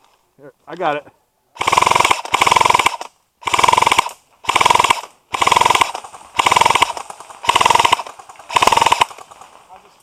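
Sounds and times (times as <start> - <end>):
airsoft gun full-auto bursts: 1.6 - 9.6.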